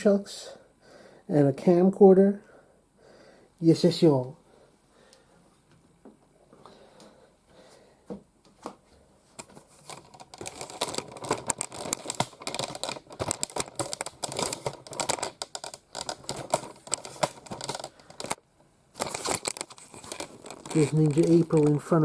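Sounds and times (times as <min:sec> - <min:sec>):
hard plastic clicking and rustling: 0:09.4 - 0:18.4, 0:19.0 - 0:22.0.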